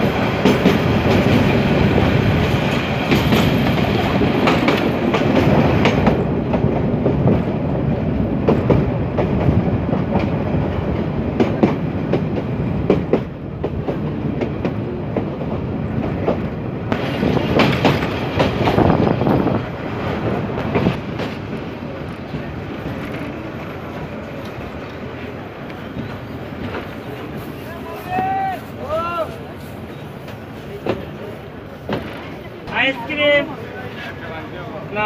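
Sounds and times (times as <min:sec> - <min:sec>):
clacks over rail joints: 0:00.0 - 0:07.5, 0:08.3 - 0:27.5, 0:30.2 - 0:33.2
train wheels rumbling on rail: 0:00.0 - 0:35.0.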